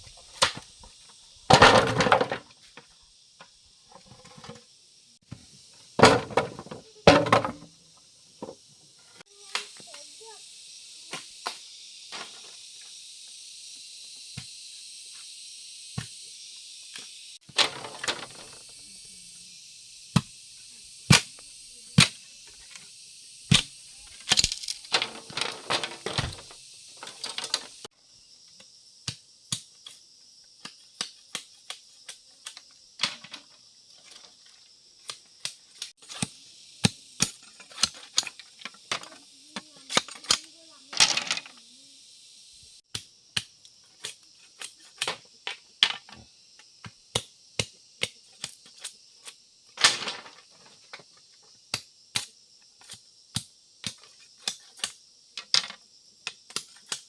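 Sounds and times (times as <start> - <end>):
high-pitched insect drone: 2.0 - 29.0, 29.8 - 42.9.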